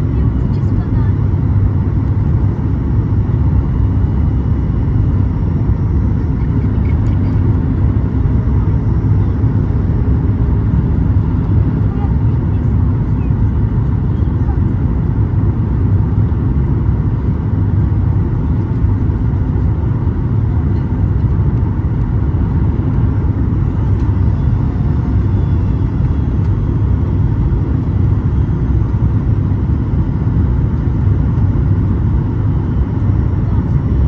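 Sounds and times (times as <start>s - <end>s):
airplane cabin rumble: 0.0s - 34.0s.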